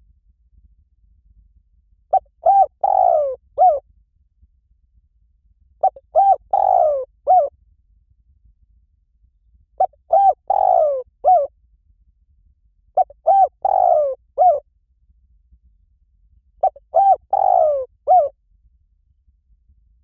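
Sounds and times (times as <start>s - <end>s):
dove cooing: 2.1s - 3.8s, 5.8s - 7.5s, 9.8s - 11.5s, 13.0s - 14.6s, 16.6s - 18.3s.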